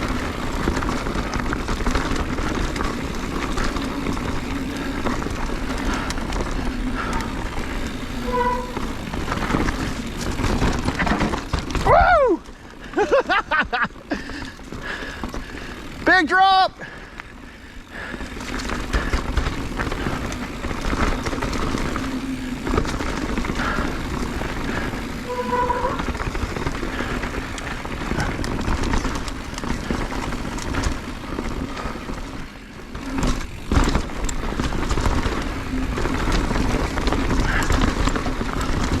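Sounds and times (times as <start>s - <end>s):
bike clattering over rocks: 0.0s - 16.0s, 18.1s - 39.0s
brief tone: 8.2s - 8.8s, 25.3s - 26.0s.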